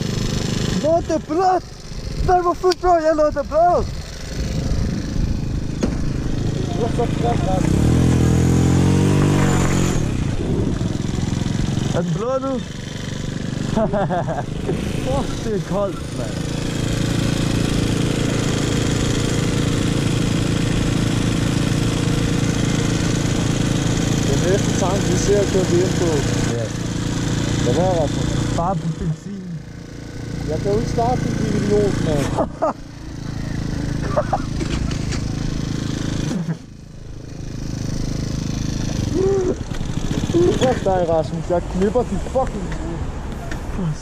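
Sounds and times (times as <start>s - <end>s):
small motorbike engine idling: 0.0s - 44.0s.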